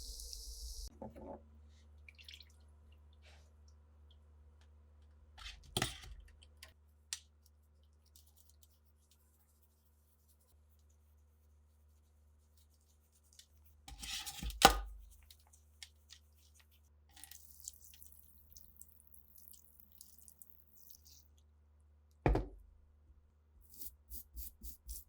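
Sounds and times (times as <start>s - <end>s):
sharp knock on work surface: 22.3s - 22.6s.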